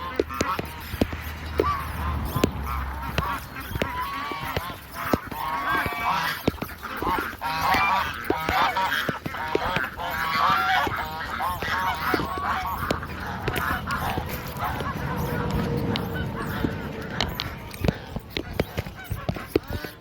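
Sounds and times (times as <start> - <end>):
flock of birds calling: 0.0 - 20.0.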